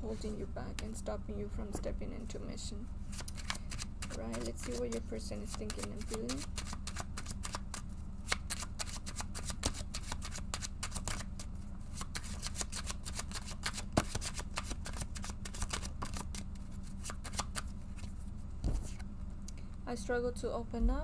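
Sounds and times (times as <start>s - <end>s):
low steady hum: 0.0s - 21.0s
cards being shuffled: 3.0s - 19.1s.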